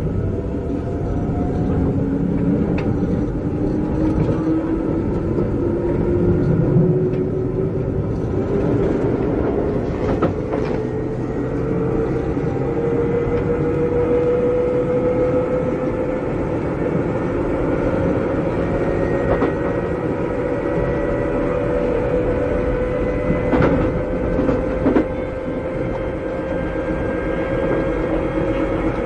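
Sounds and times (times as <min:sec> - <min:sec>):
wheel and rail rumble: 0:00.0 - 0:29.0
rail joint clicks: 0:01.3 - 0:07.4, 0:08.0 - 0:12.0, 0:19.1 - 0:19.9, 0:22.4 - 0:29.0.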